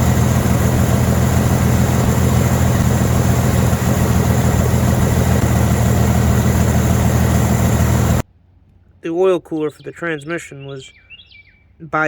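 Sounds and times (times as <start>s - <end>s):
car engine idling: 0.0s - 8.2s.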